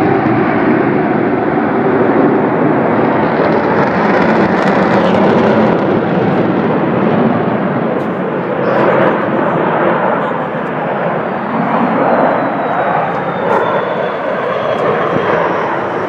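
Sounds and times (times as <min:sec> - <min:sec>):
aircraft engine rush: 0:00.0 - 0:16.0.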